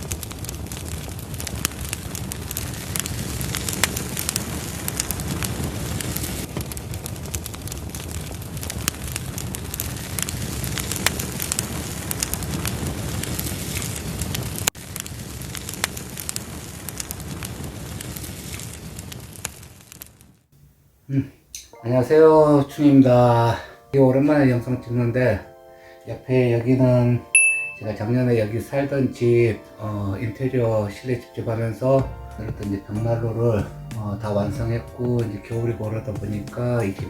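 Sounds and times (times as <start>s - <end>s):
low rush of flames: 0.0s - 20.5s
logs crackling and popping: 0.0s - 20.6s, 26.3s - 37.0s.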